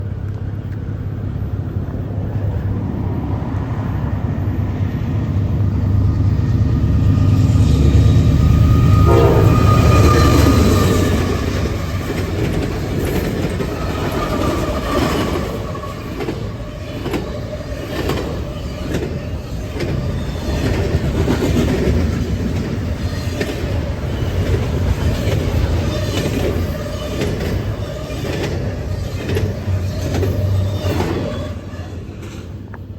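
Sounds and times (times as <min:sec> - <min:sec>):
freight train rumbling past: 0:00.0 - 0:32.9
wheels clacking on rail joints: 0:05.9 - 0:32.9
train horn: 0:07.1 - 0:12.2.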